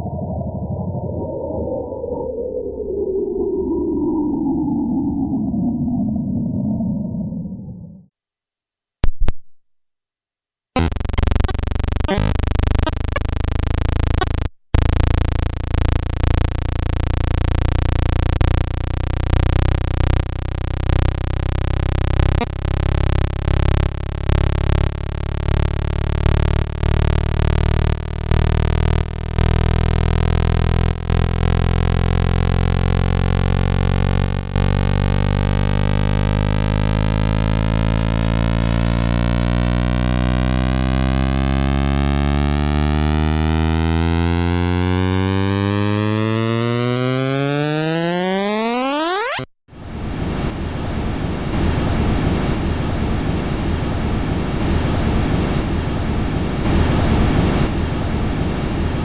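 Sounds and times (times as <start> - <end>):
buzzing drone with clicks: 10.8 - 49.5.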